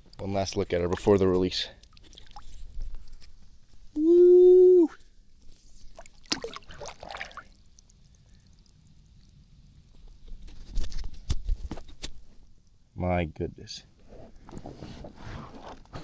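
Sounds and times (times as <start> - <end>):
water splashing and dripping: 0.0 - 3.9, 5.4 - 12.8.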